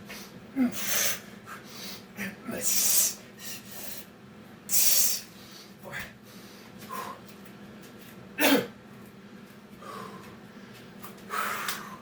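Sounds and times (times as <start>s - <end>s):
man breathing hard: 0.1s - 4.0s, 4.8s - 7.4s, 9.8s - 12.0s.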